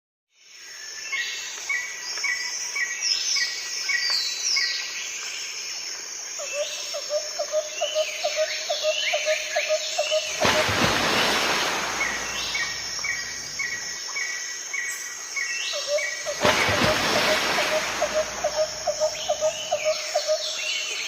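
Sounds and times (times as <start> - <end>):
sweeping whistled bird calls: 6.4 - 21.0.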